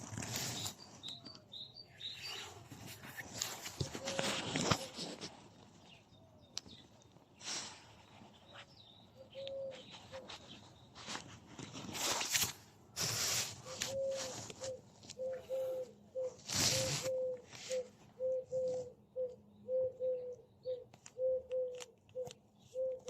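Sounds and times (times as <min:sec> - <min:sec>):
low cooing notes: 0:13.9 - 0:20.4.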